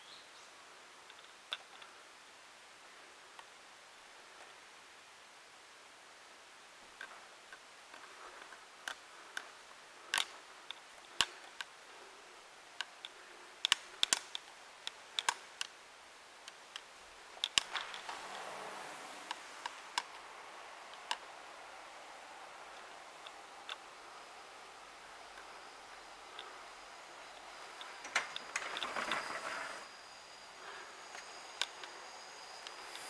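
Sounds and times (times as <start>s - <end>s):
soft rustling: 16.4s - 33.0s.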